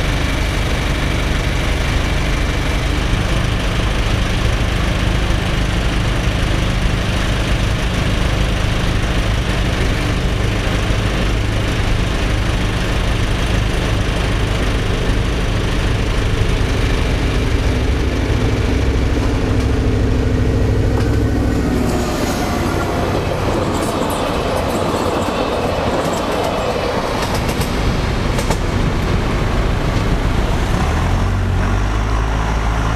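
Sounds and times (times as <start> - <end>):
train engine drone: 0.0 - 32.9
train wheels on rails: 0.0 - 32.9
wheels clicking over rail joints: 20.7 - 30.6.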